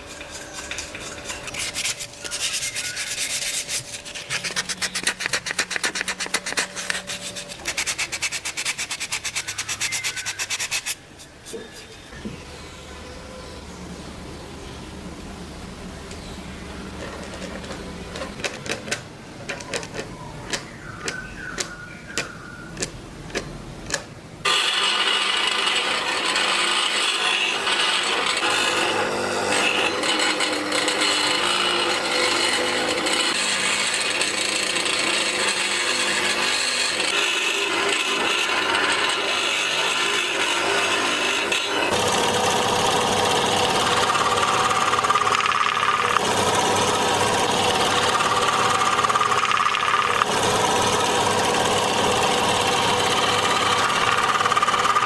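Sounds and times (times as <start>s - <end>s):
small power tool cutting wood: 24.5s - 55.0s.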